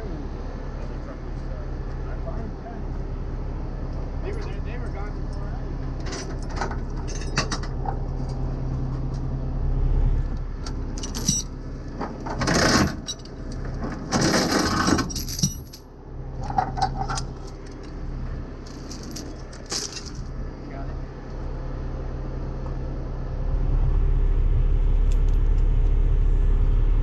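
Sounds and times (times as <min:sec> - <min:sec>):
diesel truck engine idling: 0:00.0 - 0:12.4, 0:15.8 - 0:27.0
metallic clinks and rattles: 0:06.0 - 0:07.9, 0:11.0 - 0:11.6, 0:12.3 - 0:18.0, 0:18.6 - 0:20.3.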